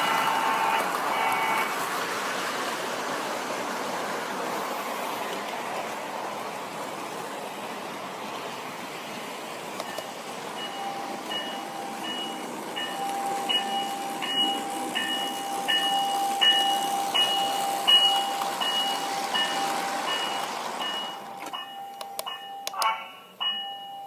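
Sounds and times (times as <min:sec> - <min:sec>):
model trains humming: 0:00.0 - 0:24.0
two-tone electronic bell dinging: 0:09.9 - 0:24.0.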